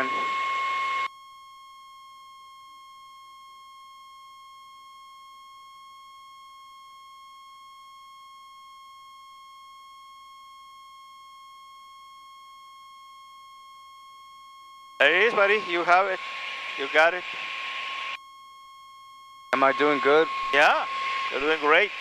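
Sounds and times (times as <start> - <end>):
high buzzy electronic tone: 15.0 - 18.5, 19.6 - 22.0.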